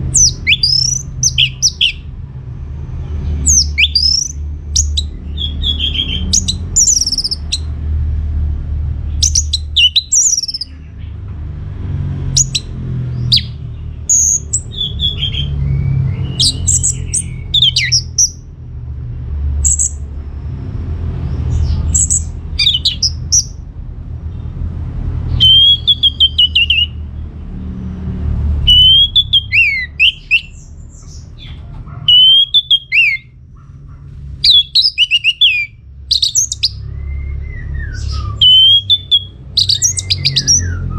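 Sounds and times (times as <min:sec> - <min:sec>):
thrush singing: 0:00.0 - 0:02.2, 0:03.1 - 0:07.7, 0:09.2 - 0:11.2, 0:12.2 - 0:18.5, 0:21.6 - 0:23.6, 0:25.2 - 0:27.0, 0:28.4 - 0:33.4, 0:34.4 - 0:40.9
steady low rumble: 0:00.0 - 0:40.9.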